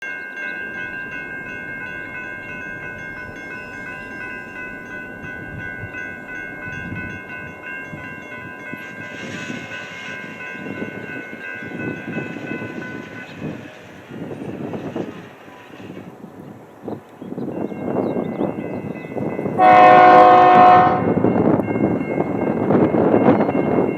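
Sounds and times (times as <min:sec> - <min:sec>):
train rumble: 0:00.0 - 0:23.9
locomotive air horn chord: 0:19.6 - 0:21.2.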